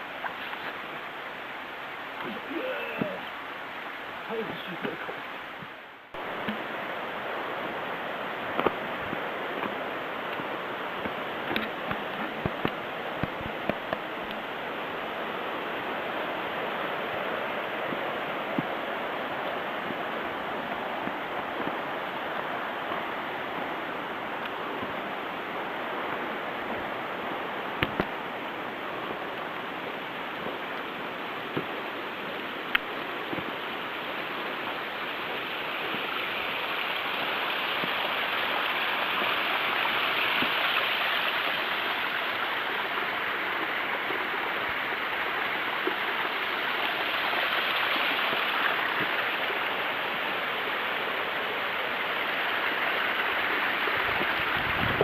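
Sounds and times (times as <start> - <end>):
mountain stream rushing: 0.0 - 55.0.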